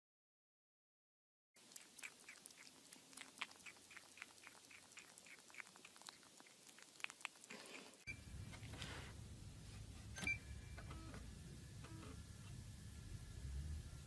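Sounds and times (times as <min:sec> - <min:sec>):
kitten gnawing plastic bowl: 0:01.6 - 0:08.8
low hum: 0:08.1 - 0:14.0.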